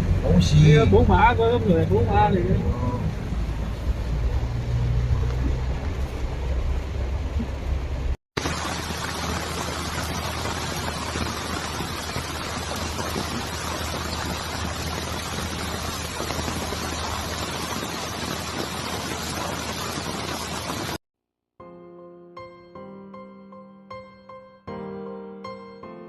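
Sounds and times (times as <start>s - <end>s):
heavy rain pouring: 0.4s - 21.0s.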